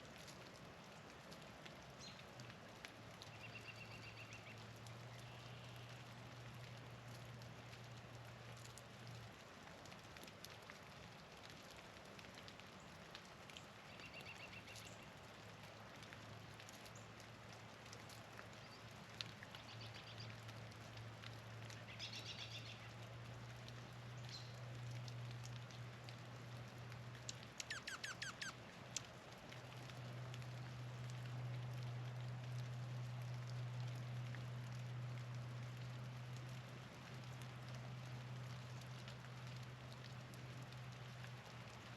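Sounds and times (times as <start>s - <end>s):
light ticks: 0.1s - 41.9s
songbird calls: 27.3s - 28.6s.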